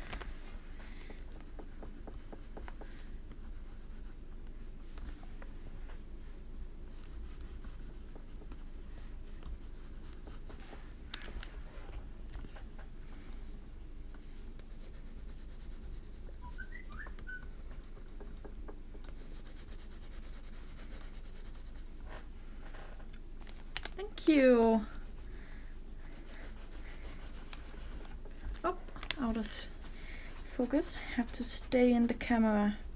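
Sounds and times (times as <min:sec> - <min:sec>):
wax pastel scratching paper: 0:13.5 - 0:22.2, 0:23.9 - 0:32.9.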